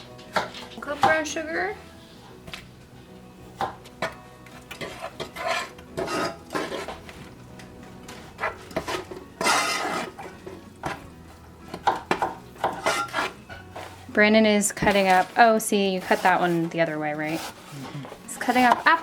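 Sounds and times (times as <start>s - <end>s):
utensils clinking against bowls: 3.6s - 7.1s, 8.1s - 11.1s, 11.7s - 13.9s, 17.4s - 19.0s.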